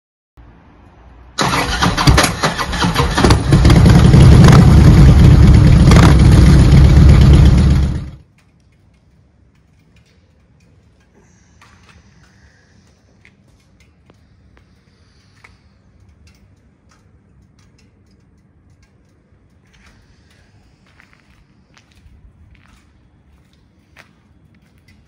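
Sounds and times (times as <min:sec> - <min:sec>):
motorcycle engine running: 0:01.4 - 0:08.2.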